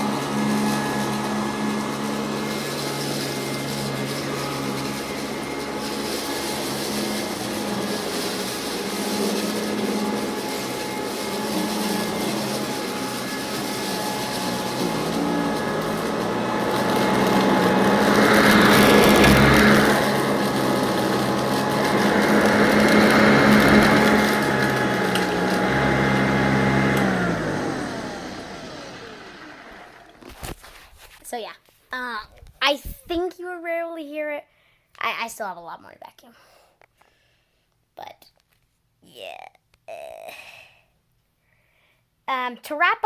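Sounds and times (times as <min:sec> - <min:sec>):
vacuum cleaner running: 0:00.0 - 0:30.8
beads rattling up vacuum: 0:00.0 - 0:31.2.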